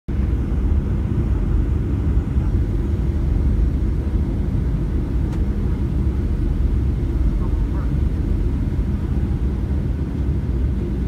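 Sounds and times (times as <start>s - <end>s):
airliner cabin rumble: 0.1s - 11.0s
faint click: 5.3s - 5.5s.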